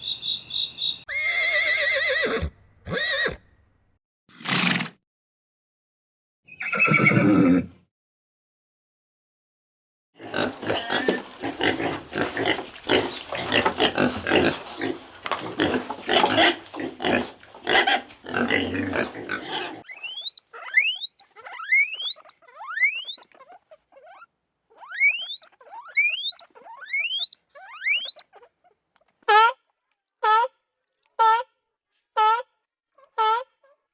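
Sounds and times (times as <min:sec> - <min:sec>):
rough grunting: 0:10.2 - 0:19.9
animal call: 0:17.7 - 0:28.5
quick rising squeaks: 0:19.9 - 0:23.3, 0:24.8 - 0:28.2.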